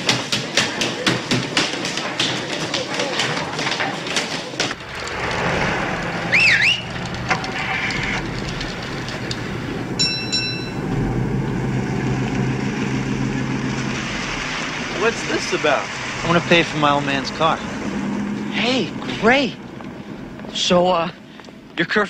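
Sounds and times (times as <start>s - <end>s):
car engine running: 4.7s - 22.0s
rising-and-falling chirp: 4.8s - 7.2s
bell dings: 10.0s - 10.8s.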